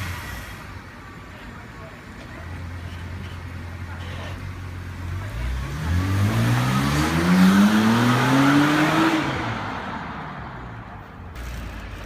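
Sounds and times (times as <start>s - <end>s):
car engine revving: 5.1s - 10.4s.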